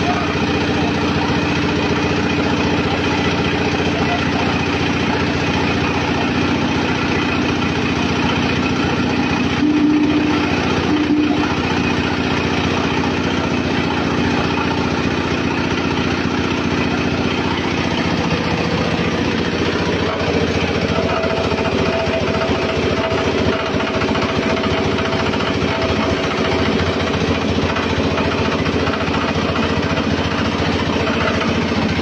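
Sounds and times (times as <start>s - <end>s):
machine droning: 0.0s - 32.0s
short higher tone: 9.6s - 11.6s.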